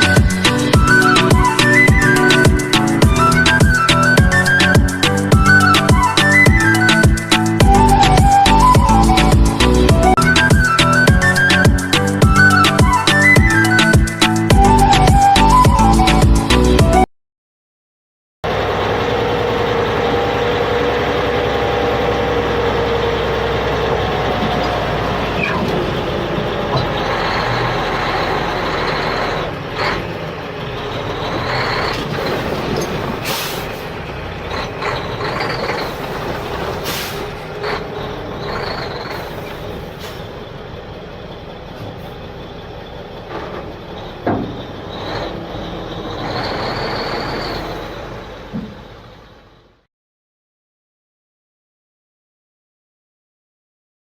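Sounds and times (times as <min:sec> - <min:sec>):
vehicle motor running: 0:18.5 - 0:49.8
knocks: 0:44.2 - 0:44.6.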